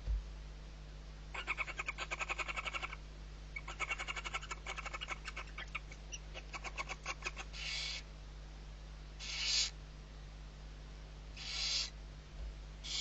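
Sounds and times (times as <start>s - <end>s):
owl chick chittering calls: 1.3s - 3.0s, 3.6s - 8.1s, 9.2s - 9.8s, 11.4s - 12.0s
owl chick hissing: 1.4s - 3.0s, 3.6s - 8.1s, 9.2s - 9.8s, 11.4s - 12.0s.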